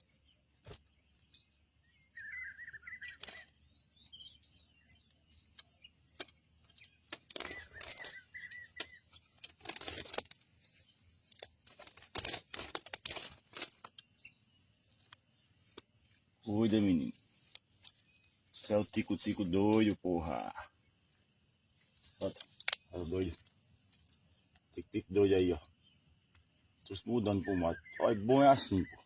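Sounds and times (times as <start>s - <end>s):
sparrow twittering chirps: 0.0s - 11.4s, 13.5s - 29.0s
clicks and rustles: 5.0s - 16.3s, 17.0s - 20.0s, 21.8s - 24.8s.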